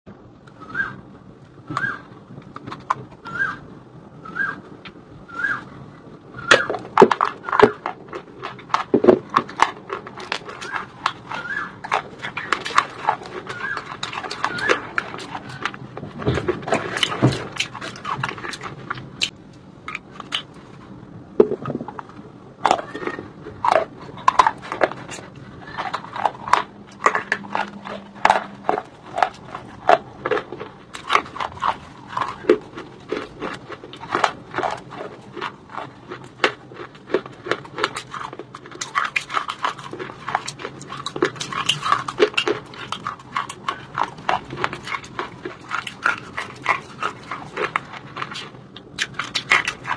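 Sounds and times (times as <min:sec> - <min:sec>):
crunching stone: 0:06.4 - 0:20.8, 0:21.4 - 0:49.9.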